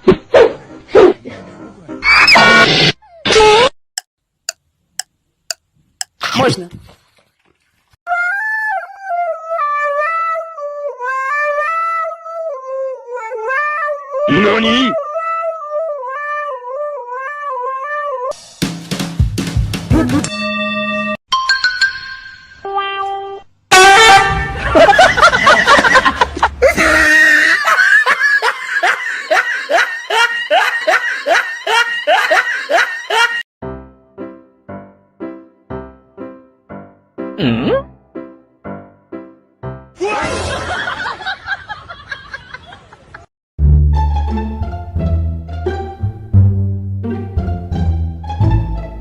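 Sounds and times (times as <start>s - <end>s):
person laughing hard: 19.9s - 20.3s, 24.5s - 33.4s, 40.0s - 43.2s.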